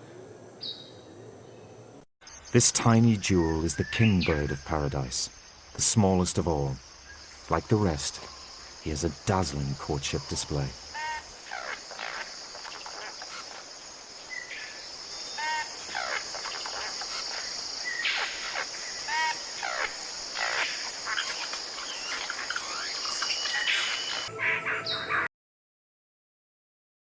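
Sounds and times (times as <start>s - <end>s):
forest insects droning: 0.0s - 25.2s
bird calling with falling whistles: 14.3s - 25.3s.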